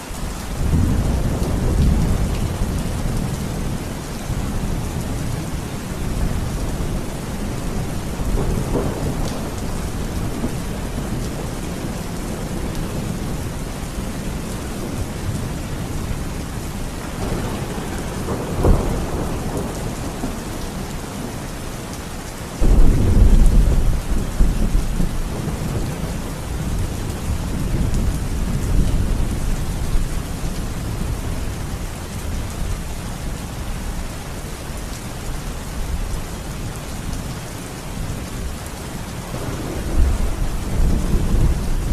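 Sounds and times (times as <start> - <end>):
steady rain: 0.0 - 41.9
thunder rumbling: 0.6 - 22.0, 22.6 - 31.6, 39.3 - 41.9
sharp crack of thunder: 17.1 - 21.4, 22.6 - 30.0, 39.3 - 41.9.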